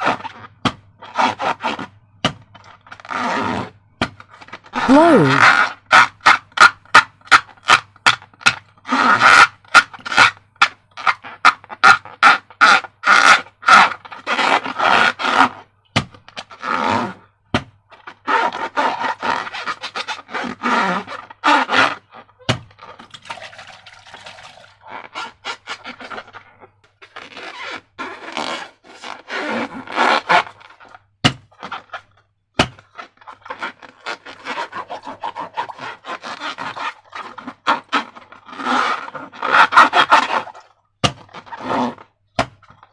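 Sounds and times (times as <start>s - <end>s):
slime squished in balloon: 4.8s - 5.4s.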